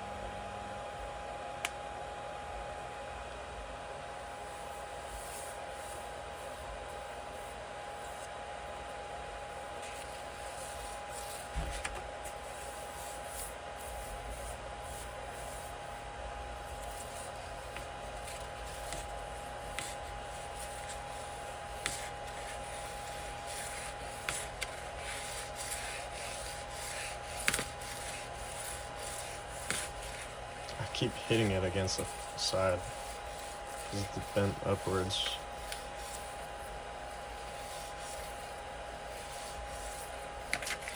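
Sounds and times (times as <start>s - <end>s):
steady high hum: 0.0s - 40.9s
rubbing and scraping: 9.4s - 40.9s.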